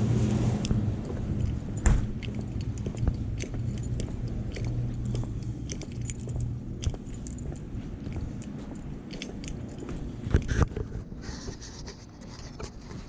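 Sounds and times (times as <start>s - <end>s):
low hum: 0.0s - 11.2s
jangling and clicking handling: 1.0s - 10.9s.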